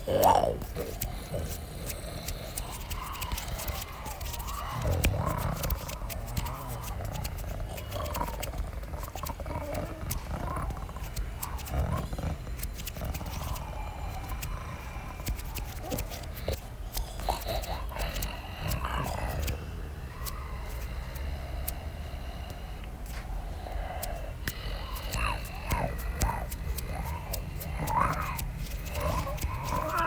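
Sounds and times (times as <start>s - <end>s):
large animals growling and roaring: 0.0s - 16.2s, 23.6s - 30.0s
sharp clicks: 0.0s - 19.6s, 23.8s - 30.0s.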